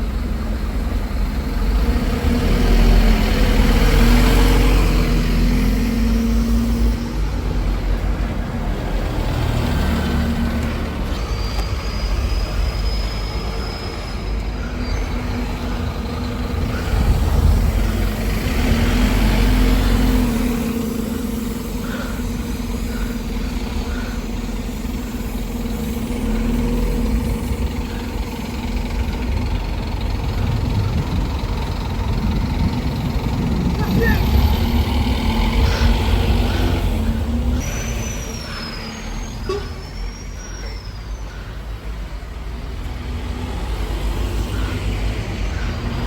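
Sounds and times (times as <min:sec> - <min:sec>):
bus diesel engine running: 0:00.0 - 0:46.0.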